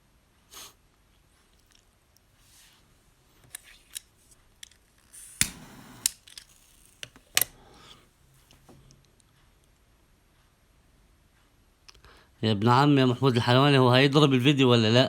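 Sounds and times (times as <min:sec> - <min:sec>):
brush strokes scraping: 0:02.4 - 0:02.9
sharp clicks and knocks: 0:05.4 - 0:07.5.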